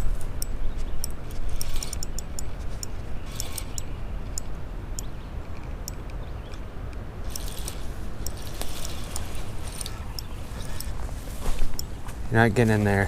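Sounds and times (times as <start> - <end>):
fishing reel clicking: 1.0 - 2.5, 3.3 - 3.9, 7.3 - 10.8.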